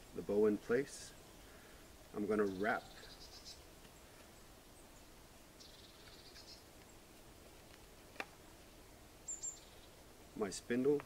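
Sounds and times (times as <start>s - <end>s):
faint high bird trill: 2.3s - 6.7s, 9.2s - 10.0s.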